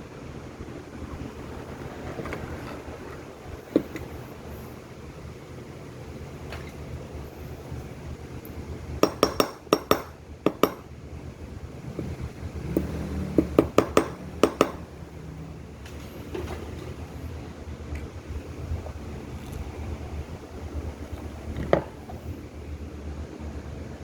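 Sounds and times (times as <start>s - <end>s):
low hum: 10.1s - 24.0s.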